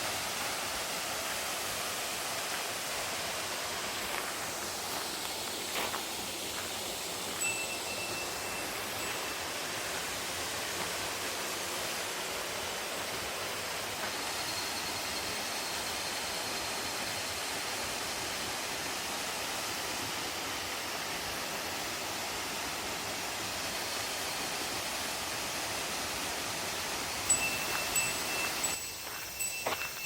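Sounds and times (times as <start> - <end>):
waterfall rushing: 0.0 - 28.8
wind chime ringing: 7.4 - 9.7, 27.1 - 30.0.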